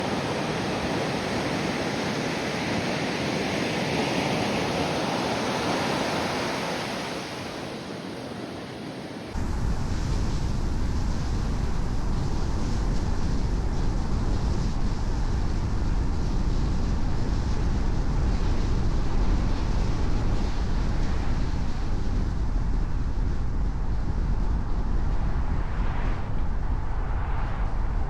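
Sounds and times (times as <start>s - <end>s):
waves breaking: 0.0s - 8.1s.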